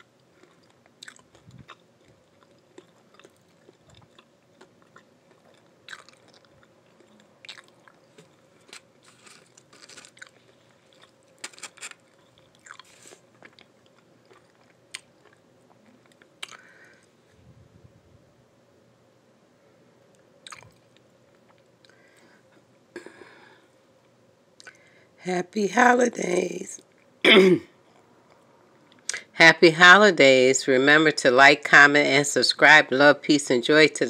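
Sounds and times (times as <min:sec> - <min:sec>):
person chewing crunchy food: 0:00.0 - 0:17.1, 0:20.4 - 0:22.0.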